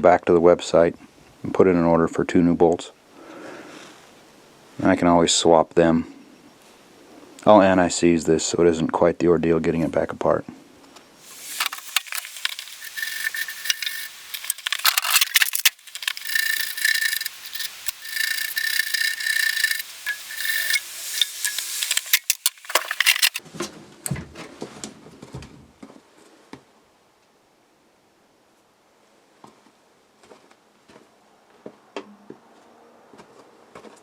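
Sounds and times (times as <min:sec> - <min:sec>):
brush scrubbing bolt threads: 0:11.3 - 0:23.4
metal parts clunking: 0:11.3 - 0:23.4.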